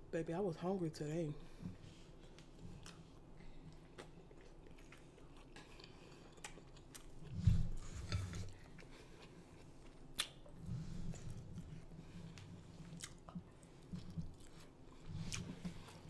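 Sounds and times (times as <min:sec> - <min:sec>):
chewing and wet mouth sounds: 0:01.6 - 0:16.0
sharp mouth smacks and clicks: 0:10.2 - 0:10.4.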